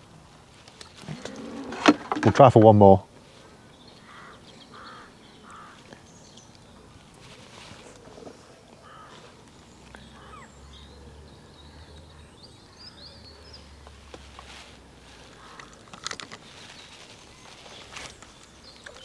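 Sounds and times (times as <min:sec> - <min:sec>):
fishing rod knocks and rustles: 0:00.8 - 0:02.7, 0:15.3 - 0:16.5
small birds chirping: 0:03.2 - 0:19.0.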